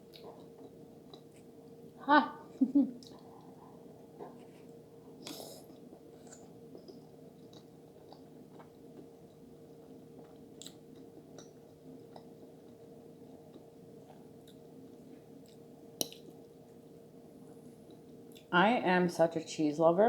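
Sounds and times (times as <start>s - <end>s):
chewing food: 0.0s - 1.6s, 3.0s - 16.4s, 17.8s - 18.5s
faint steady hum: 0.0s - 20.0s
wet mouth clicks and smacks: 15.5s - 16.3s.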